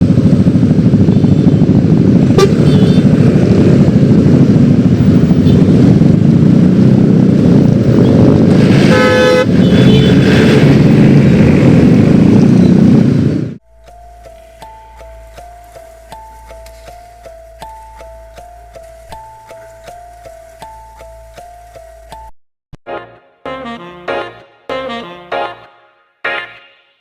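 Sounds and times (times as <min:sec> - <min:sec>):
scooter engine running: 0:00.0 - 0:13.6
vehicle horn: 0:01.0 - 0:03.3, 0:05.2 - 0:05.8, 0:08.0 - 0:11.1.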